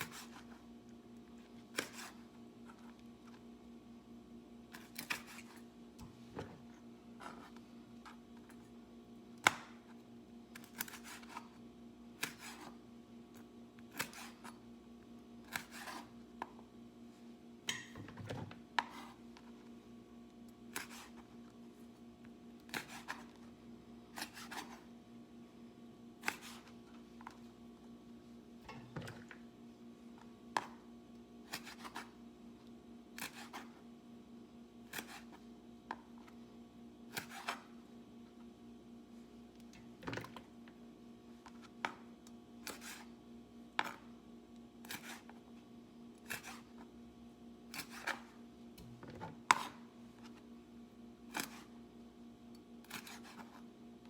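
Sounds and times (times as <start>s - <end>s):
knife chopping on cutting board: 15.5s - 16.1s, 22.7s - 23.3s.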